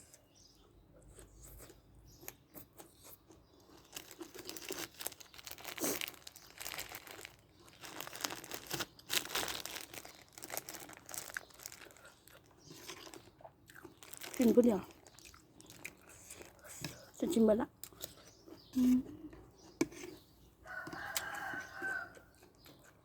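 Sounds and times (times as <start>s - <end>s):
plastic bag crinkling and tearing: 3.7s - 13.3s, 14.0s - 15.8s.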